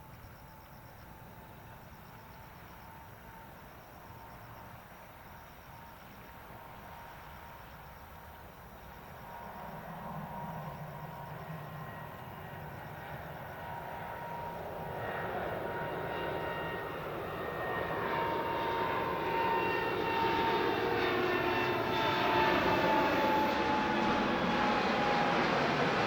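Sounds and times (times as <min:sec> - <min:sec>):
jet engine whine: 0:00.0 - 0:26.0
jet engines roaring: 0:08.8 - 0:26.0.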